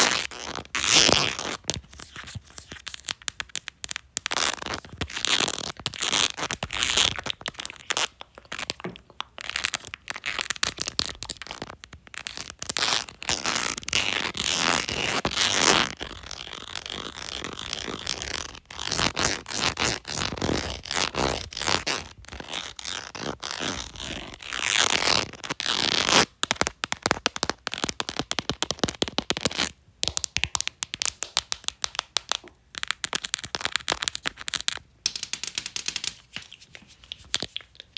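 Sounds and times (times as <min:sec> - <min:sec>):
scratchy rubbing on phone case: 0:36.0 - 0:37.9.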